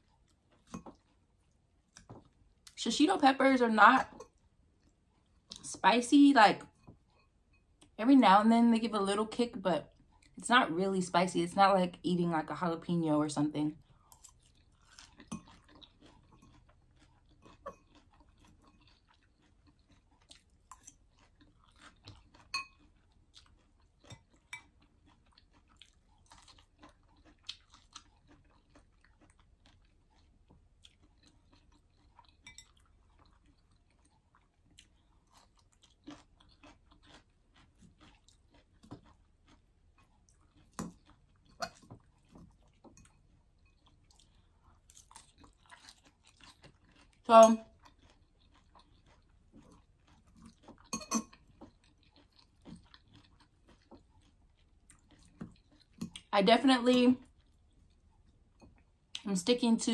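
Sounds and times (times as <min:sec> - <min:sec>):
person chewing salad: 0:00.0 - 0:02.8, 0:04.2 - 0:05.7, 0:09.9 - 0:10.4, 0:13.8 - 0:56.3, 0:57.2 - 0:59.3
crunching and mouth sounds: 0:13.8 - 0:56.3.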